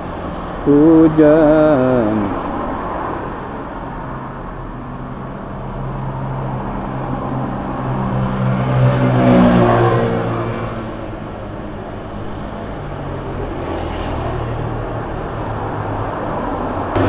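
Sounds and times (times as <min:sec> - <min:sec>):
street noise hiss: 0:00.0 - 0:07.9
vehicle engine passing by: 0:05.8 - 0:11.0, 0:12.7 - 0:17.0.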